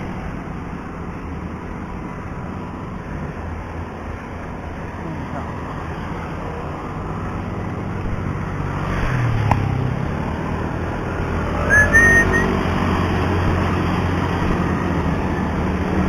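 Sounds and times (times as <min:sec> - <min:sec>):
bicycle road rumble: 0:00.0 - 0:16.0
high whistle-like squeal: 0:11.6 - 0:12.6.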